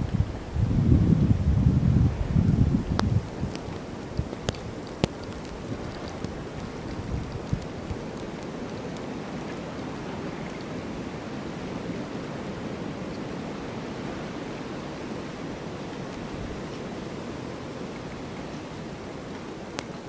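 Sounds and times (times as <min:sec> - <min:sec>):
snowstorm wind rushing: 0:00.0 - 0:04.8.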